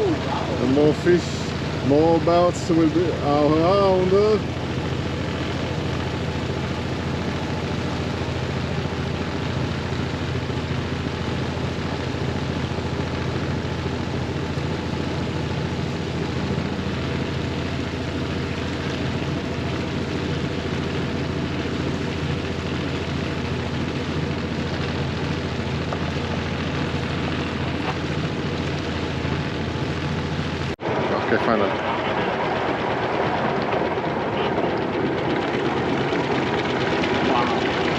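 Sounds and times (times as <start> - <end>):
boat engine humming: 0.0 - 37.9.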